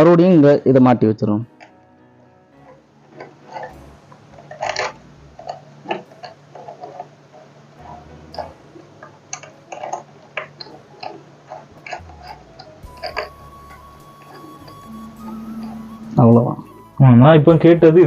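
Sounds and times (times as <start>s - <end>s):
bicycle parts clicking and knocking: 2.6s - 13.3s.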